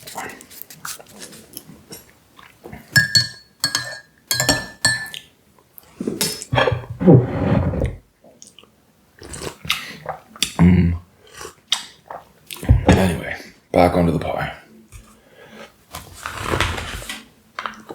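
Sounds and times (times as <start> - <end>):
spoon clinking in ceramic mug: 3.0 - 5.2.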